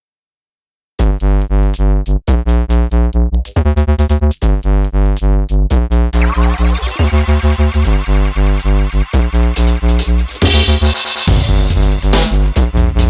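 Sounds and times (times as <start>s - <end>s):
pulsing heavy bass: 1.0s - 13.0s
descending synth sweep: 6.2s - 11.9s
electronic music with synth chords: 6.2s - 13.0s.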